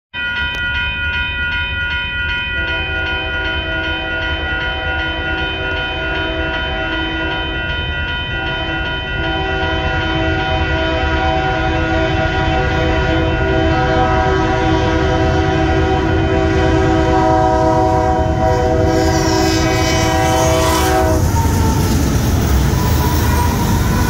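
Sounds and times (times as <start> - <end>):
railroad crossing bell ringing: 0.1 - 24.0
freight train rumble: 0.2 - 24.0
locomotive air horn blasts: 8.4 - 21.8.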